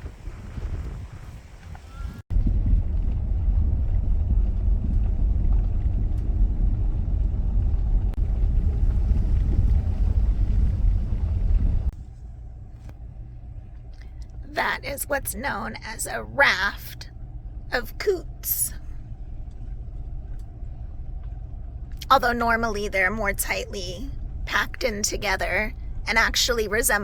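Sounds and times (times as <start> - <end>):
car driving slowly: 0.0 - 27.0.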